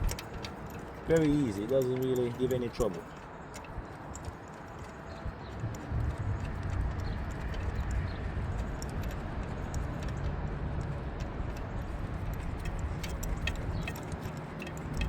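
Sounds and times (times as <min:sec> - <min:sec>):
metallic clicking of hand tools: 0:00.0 - 0:05.8, 0:06.4 - 0:15.0
low background rumble: 0:05.1 - 0:14.2.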